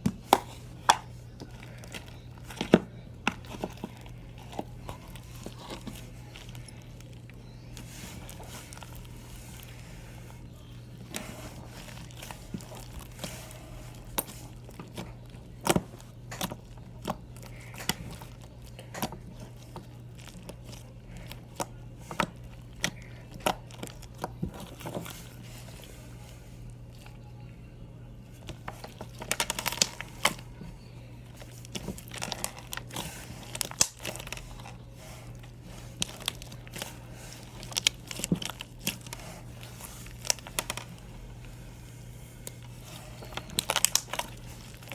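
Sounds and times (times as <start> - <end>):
steady low hum: 0.0 - 44.9
slime popping and crackling: 28.6 - 30.5, 31.3 - 41.0, 43.2 - 44.9.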